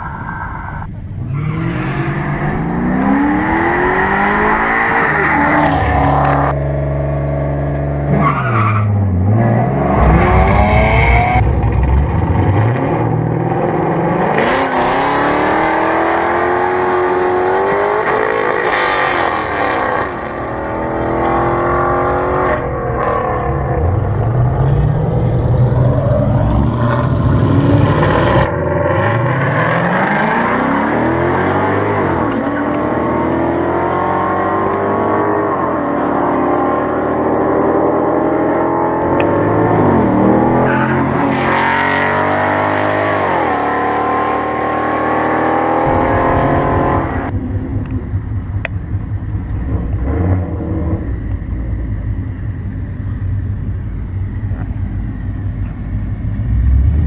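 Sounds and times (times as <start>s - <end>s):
car engine accelerating hard: 1.3s - 57.0s
car engine idling with low rumble: 47.3s - 57.0s.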